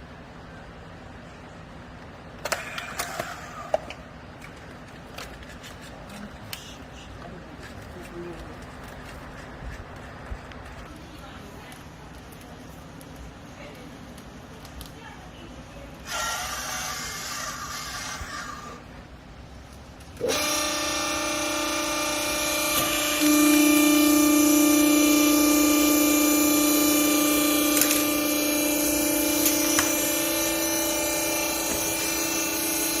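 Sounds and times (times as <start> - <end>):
hydraulic power pack humming: 19.9 - 33.0.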